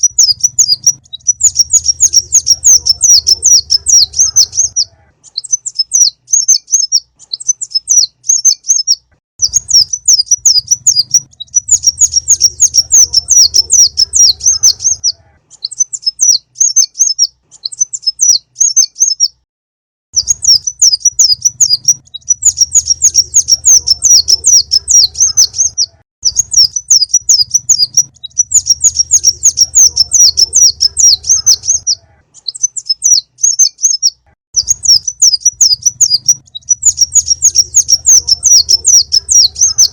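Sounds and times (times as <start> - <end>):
bird twittering trills: 0.0 - 19.4, 20.2 - 39.9.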